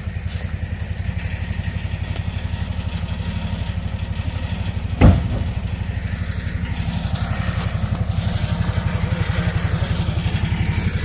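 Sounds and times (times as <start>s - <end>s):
engine idling: 0.0s - 11.0s
heavy thump: 5.0s - 5.9s.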